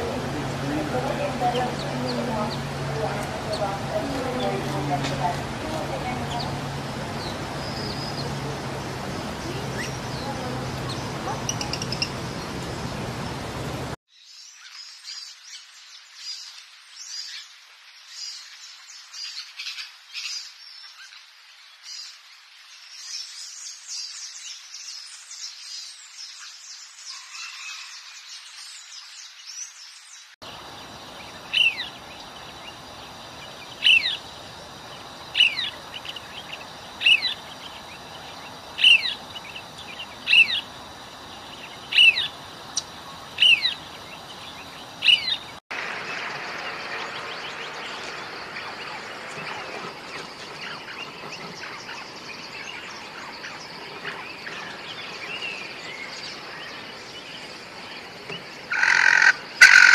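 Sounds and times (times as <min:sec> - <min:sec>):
parakeets twittering: 0:00.0 - 0:14.0, 0:30.4 - 0:59.9
sharp downward bird call: 0:58.7 - 0:59.9.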